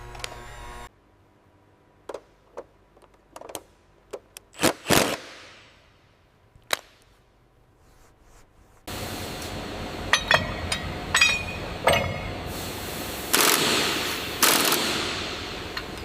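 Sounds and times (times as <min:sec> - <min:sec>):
loud ringing metal clank: 0:10.1 - 0:12.4
metal tools knocking and clinking: 0:10.1 - 0:12.4.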